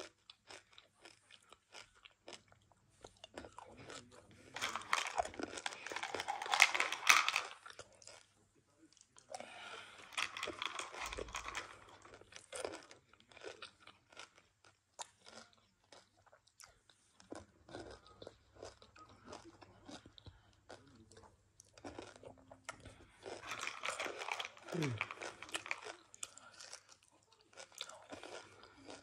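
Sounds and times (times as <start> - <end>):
chewing crunchy candy: 0.0 - 29.0.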